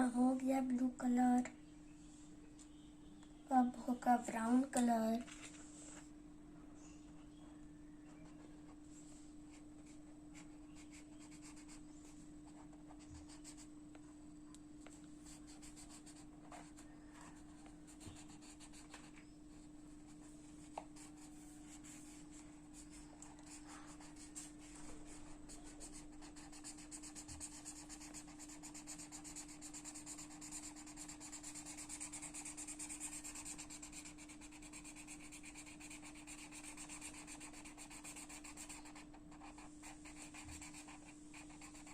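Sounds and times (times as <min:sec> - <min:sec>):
steady low hum: 0:00.0 - 0:41.9
colouring strokes on paper: 0:20.6 - 0:41.9.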